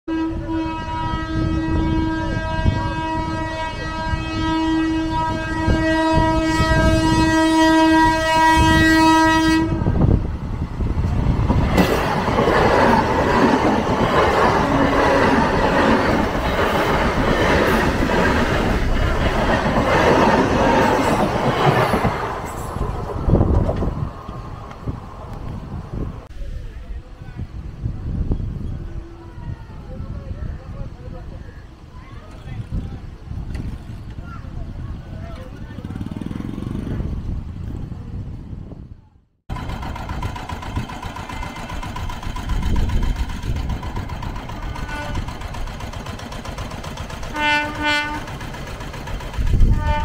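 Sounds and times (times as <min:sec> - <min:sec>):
train horn blast: 0:00.1 - 0:10.2, 0:44.7 - 0:45.4, 0:47.3 - 0:48.3, 0:49.6 - 0:50.0
train rushing past: 0:00.1 - 0:38.9, 0:39.5 - 0:50.0.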